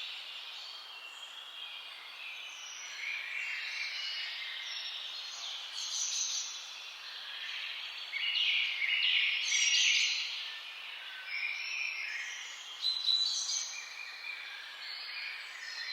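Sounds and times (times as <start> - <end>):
songbirds singing: 0.0 - 15.9.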